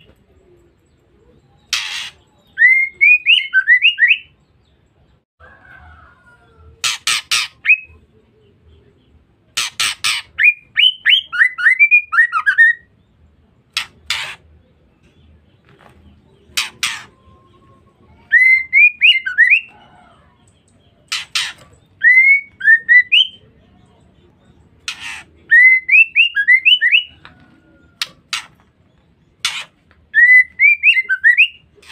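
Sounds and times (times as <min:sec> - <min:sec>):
bird harsh rasping calls: 0:01.6 - 0:04.4, 0:06.8 - 0:08.0, 0:09.5 - 0:12.9, 0:13.7 - 0:14.7, 0:16.4 - 0:20.3, 0:20.9 - 0:23.4, 0:24.7 - 0:31.9.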